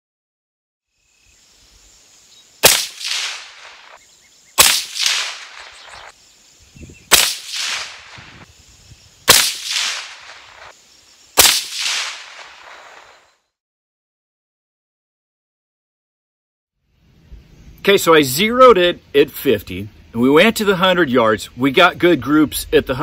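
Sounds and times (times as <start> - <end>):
gunshot echo: 2.6 - 4.0, 4.6 - 6.1, 7.1 - 8.4, 9.3 - 10.7, 11.4 - 13.2
rifle shots: 2.6 - 4.0, 4.6 - 6.1, 7.1 - 8.4, 9.3 - 10.7, 11.4 - 13.2.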